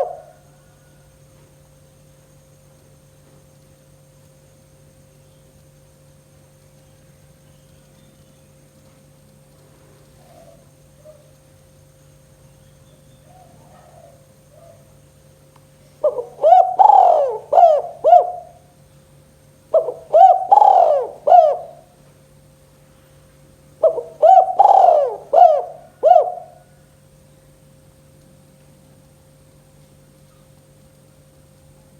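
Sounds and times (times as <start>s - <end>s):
dove cooing: 0.0s - 1.0s, 10.1s - 11.4s, 13.2s - 15.0s, 16.0s - 18.7s, 19.7s - 22.0s, 23.8s - 26.8s.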